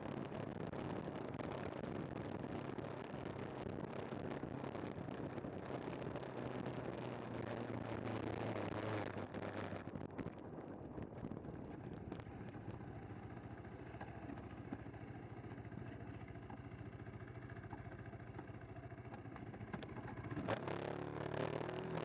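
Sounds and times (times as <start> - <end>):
motorcycle engine accelerating: 11.4 - 22.0.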